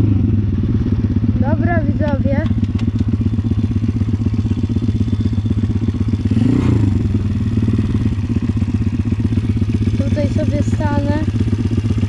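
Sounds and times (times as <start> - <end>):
motorbike engine idling: 0.0 - 12.0.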